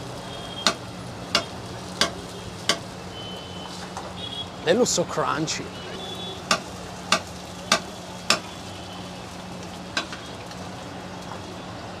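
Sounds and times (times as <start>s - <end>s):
food sizzling in hot oil: 0.0s - 12.0s
utensil knocking in pan: 0.6s - 2.8s, 6.5s - 8.5s.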